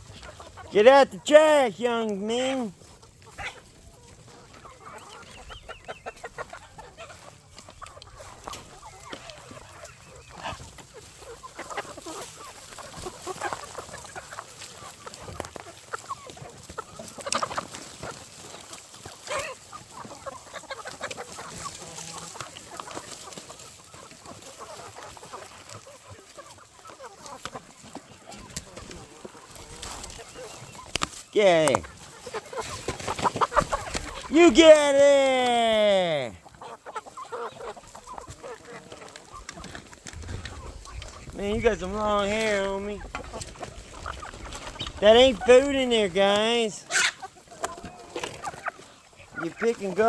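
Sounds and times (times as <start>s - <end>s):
chickens clucking: 0.0s - 50.0s
chicken squawks: 3.3s - 31.0s, 31.8s - 34.4s, 36.3s - 39.7s, 46.8s - 49.9s.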